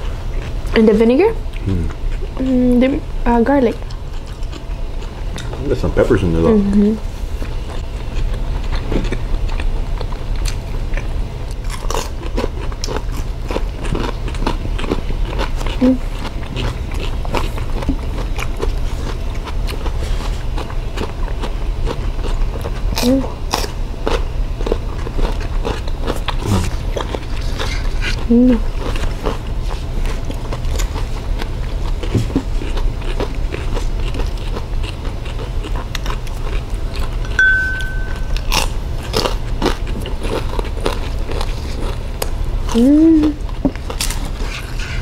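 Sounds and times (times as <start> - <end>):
steady low hum: 0.0 - 45.0
chewing and mouth smacks: 3.8 - 5.6, 7.4 - 45.0
short high tone: 37.3 - 38.6.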